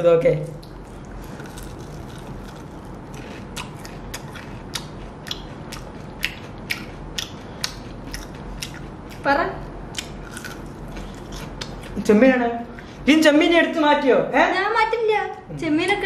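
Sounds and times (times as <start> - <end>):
man chewing crunchy food: 0.6 - 9.2, 9.9 - 12.0.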